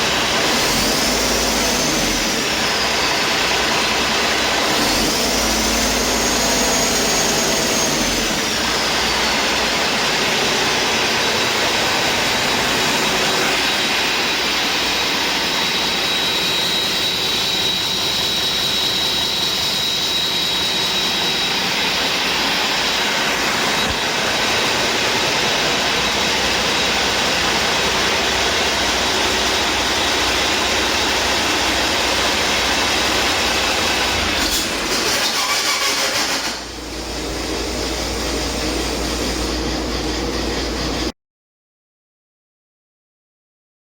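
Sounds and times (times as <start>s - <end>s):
diesel engine running: 0.0s - 41.1s
high whine: 1.1s - 35.0s
steady high whistle: 13.2s - 24.1s.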